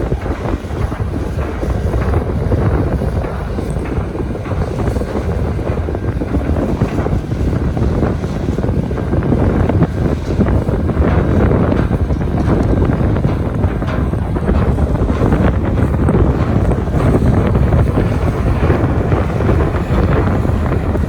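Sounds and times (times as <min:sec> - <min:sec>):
strong wind buffeting microphone: 0:00.0 - 0:21.0.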